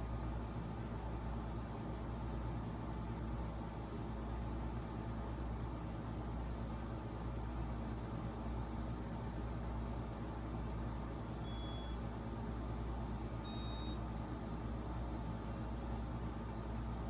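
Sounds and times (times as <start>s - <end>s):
ceiling fan motor humming: 0.0s - 17.0s
short electronic beeps: 11.5s - 12.0s, 13.4s - 14.0s, 15.5s - 16.0s.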